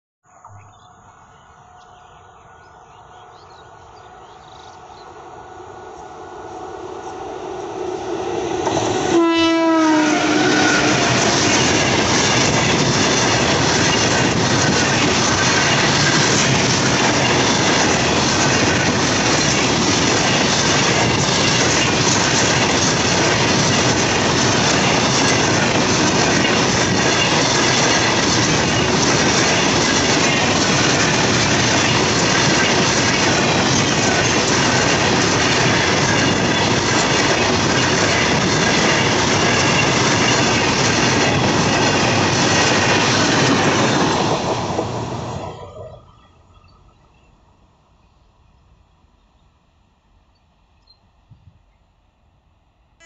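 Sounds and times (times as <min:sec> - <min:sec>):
freight train passing: 0:00.9 - 0:51.0
train horn: 0:09.0 - 0:11.3.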